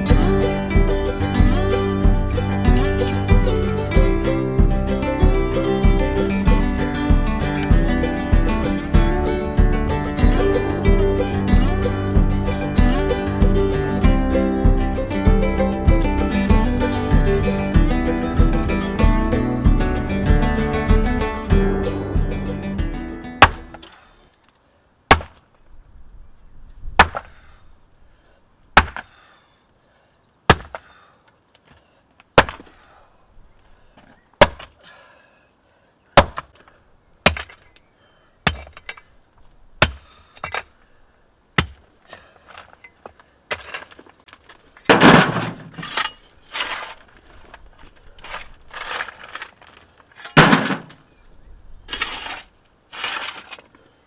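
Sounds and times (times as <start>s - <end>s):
sledgehammer striking concrete: 23.4s - 23.9s, 25.1s - 25.4s, 27.0s - 27.4s, 28.8s - 29.2s, 30.5s - 30.9s, 32.4s - 32.8s, 34.4s - 34.7s, 36.2s - 36.5s, 37.2s - 37.7s, 38.5s - 39.0s, 39.8s - 40.7s, 41.6s - 41.8s, 44.9s - 47.0s, 50.4s - 51.0s
concrete crunching apart: 23.4s - 24.2s, 28.8s - 29.2s, 32.3s - 32.9s, 33.6s - 34.8s, 36.2s - 40.9s, 41.6s - 53.9s.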